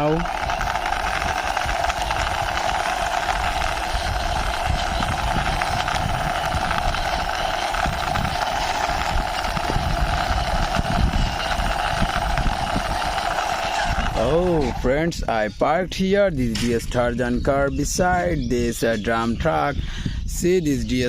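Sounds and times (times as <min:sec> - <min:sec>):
toy car wheels rolling: 0:00.0 - 0:15.0
steady mechanical hum: 0:00.0 - 0:21.0.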